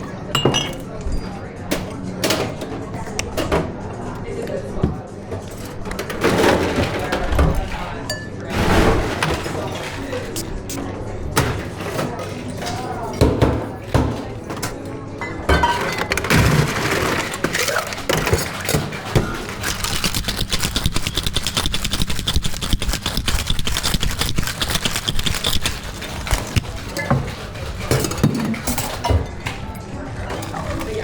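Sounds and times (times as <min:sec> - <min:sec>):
ice rattling in cocktail shaker: 0:16.6 - 0:28.1.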